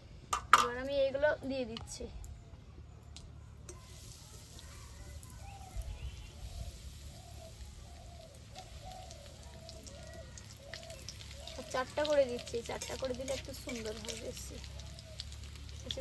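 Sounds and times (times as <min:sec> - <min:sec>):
food sizzling in hot oil: 0:03.7 - 0:16.0.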